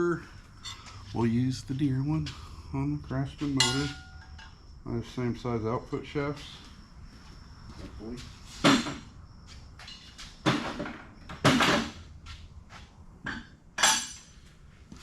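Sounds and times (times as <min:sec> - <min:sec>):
metallic clanks of tools: 0:00.6 - 0:01.0, 0:03.6 - 0:04.6, 0:13.3 - 0:14.4.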